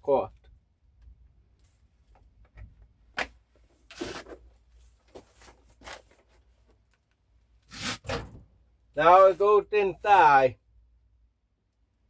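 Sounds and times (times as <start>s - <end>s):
plastic rustling scrape: 3.9s - 6.4s.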